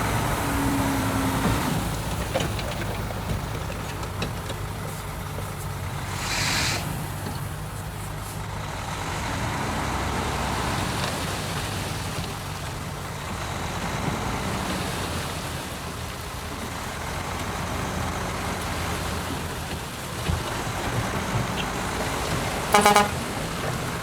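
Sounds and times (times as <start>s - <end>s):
diesel machinery engine hum: 0.0s - 24.0s
burst of hiss: 6.0s - 7.3s.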